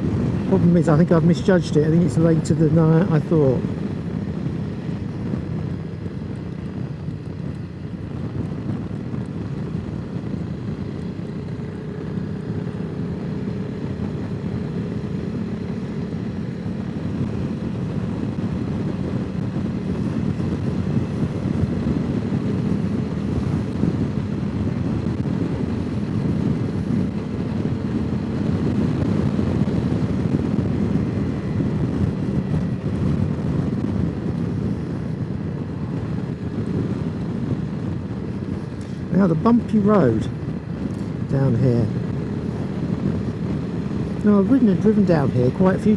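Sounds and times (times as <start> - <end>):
motorcycle engine running: 0.0 - 45.9
wind rush on microphone: 0.0 - 45.9.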